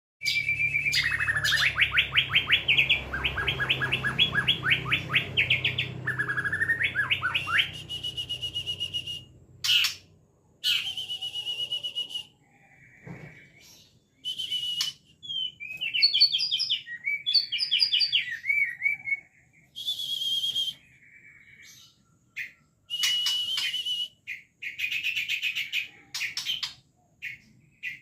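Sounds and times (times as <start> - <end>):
songbird singing fast runs and whistles: 0.2 - 10.0, 10.6 - 12.4, 14.2 - 19.0, 22.9 - 28.0.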